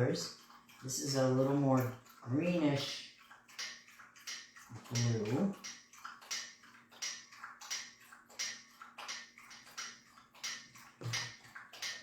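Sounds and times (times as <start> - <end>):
rhythmic panting: 0.0 - 12.0.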